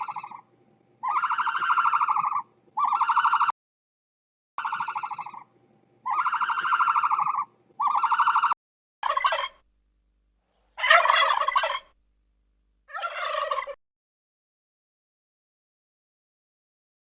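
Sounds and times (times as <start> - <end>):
rough warbling animal calls: 0.0 - 0.4, 1.0 - 3.5, 4.6 - 5.5, 6.1 - 9.6, 10.7 - 11.9, 12.9 - 13.8
drawn-out pulsing animal calls: 6.1 - 9.6, 10.8 - 11.9, 12.9 - 13.8.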